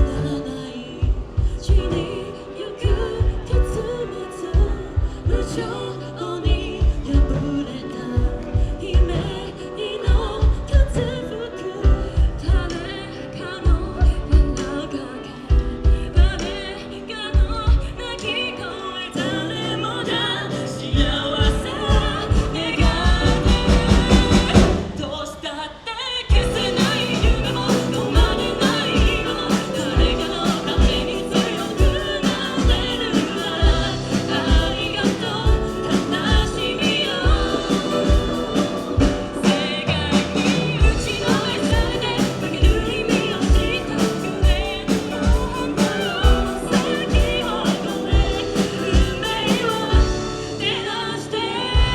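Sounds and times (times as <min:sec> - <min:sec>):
steady drum beat: 0:00.0 - 0:05.8, 0:06.4 - 0:11.2, 0:11.8 - 0:12.9, 0:19.2 - 0:25.2, 0:26.3 - 0:50.8
person singing: 0:00.0 - 0:51.9
live band playing: 0:19.1 - 0:25.2, 0:26.3 - 0:51.9.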